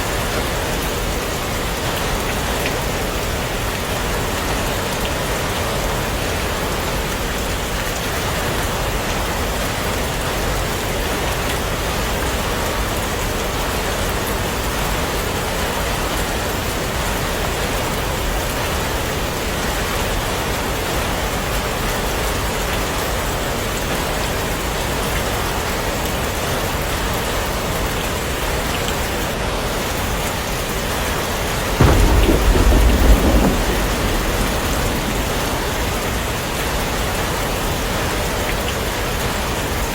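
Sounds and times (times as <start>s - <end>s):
heavy rain: 0.0s - 39.9s
low rumble of thunder: 31.6s - 38.4s.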